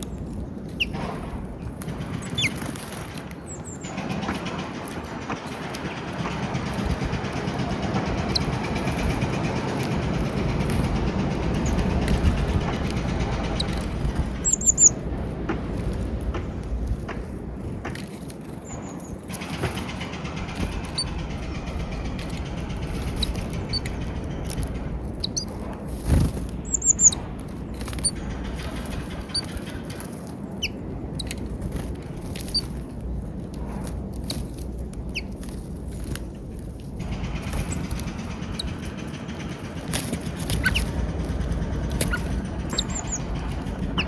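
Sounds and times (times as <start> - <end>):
small birds chirping: 0.0 - 1.0, 2.0 - 4.5, 11.6 - 15.0, 18.6 - 29.9, 37.1 - 44.0
low background rumble: 0.0 - 44.0.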